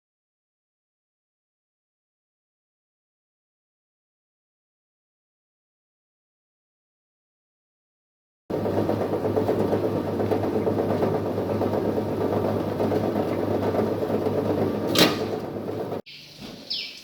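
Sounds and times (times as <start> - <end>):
shredding machine motor hum: 8.5 - 16.0.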